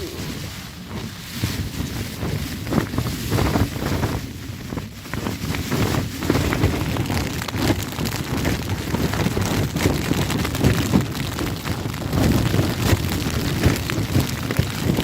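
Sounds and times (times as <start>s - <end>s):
tent fabric flapping: 0.0s - 15.0s
wind rumble on microphone: 0.0s - 15.0s.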